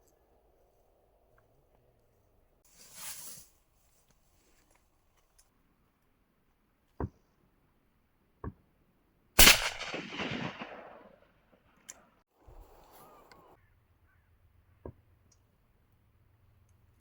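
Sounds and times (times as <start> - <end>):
shotgun shot echoing: 9.4 - 11.4.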